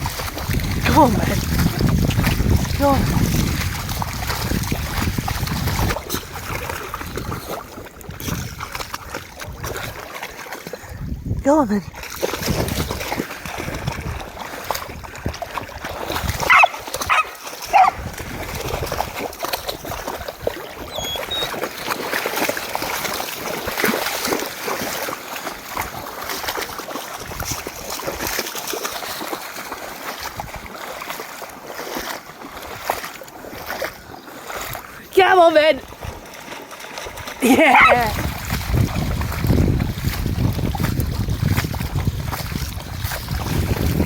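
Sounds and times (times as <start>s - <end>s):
dogs splashing through water: 0.0s - 44.0s
dog crying: 16.5s - 18.0s, 20.9s - 21.6s, 37.6s - 38.1s.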